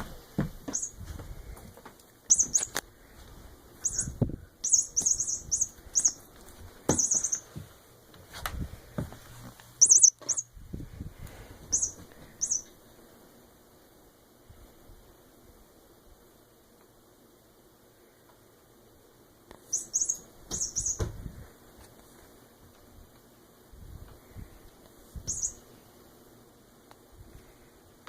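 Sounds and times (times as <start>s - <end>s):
dull knocks and thumps: 0.0s - 2.0s
squeaky toy squeaks: 9.8s - 10.5s.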